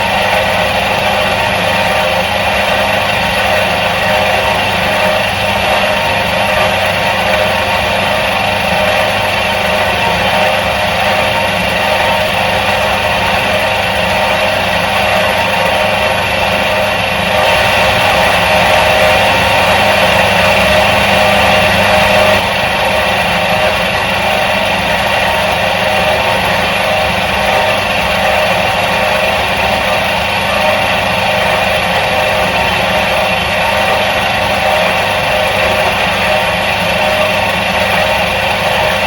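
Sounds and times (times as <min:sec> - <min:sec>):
washing machine motor humming: 0:00.0 - 0:39.0.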